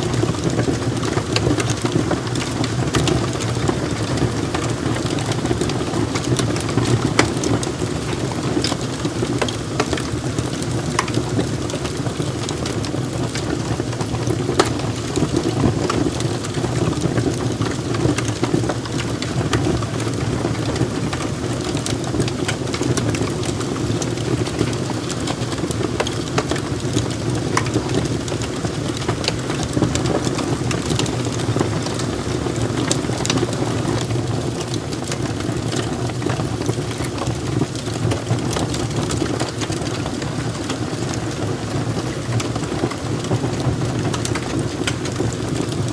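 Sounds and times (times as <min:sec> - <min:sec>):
logs crackling and popping: 0:00.0 - 0:45.9
rushing of flames: 0:00.0 - 0:45.9.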